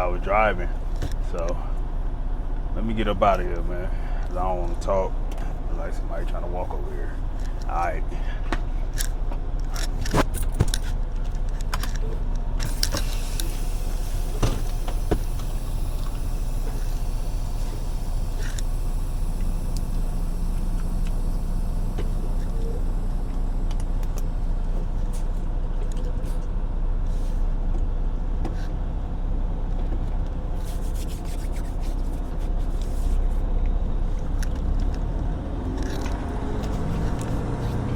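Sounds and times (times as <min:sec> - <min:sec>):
diesel truck engine running: 0:00.0 - 0:37.9
sharp clicks and rattles: 0:07.2 - 0:07.9, 0:08.9 - 0:24.6, 0:33.7 - 0:37.9.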